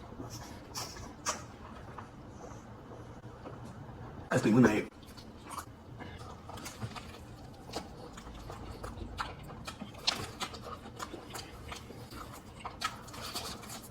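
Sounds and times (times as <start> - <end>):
chewing and crunching food: 0.0 - 3.8, 4.9 - 13.9.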